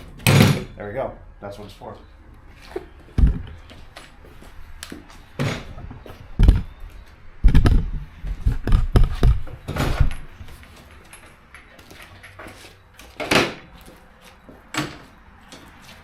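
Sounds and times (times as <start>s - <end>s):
tools knocking and thumping: 0.0s - 0.7s.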